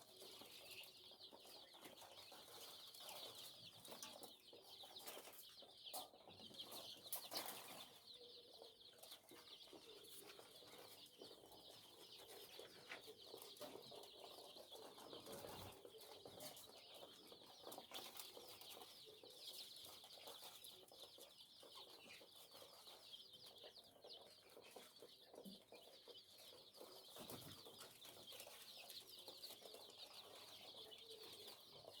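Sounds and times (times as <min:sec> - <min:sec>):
chicks peeping: 0:00.0 - 0:32.0.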